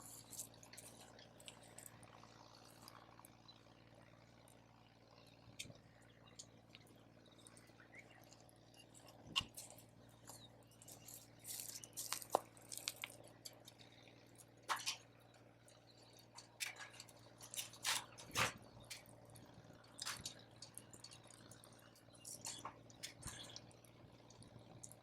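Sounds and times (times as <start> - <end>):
campfire crackling: 5.6 - 25.0.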